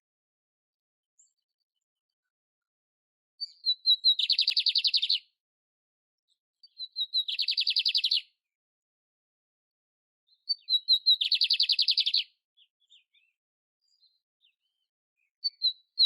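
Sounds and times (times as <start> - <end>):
canary singing with trills: 3.4 - 5.3, 6.6 - 8.4, 10.3 - 16.0.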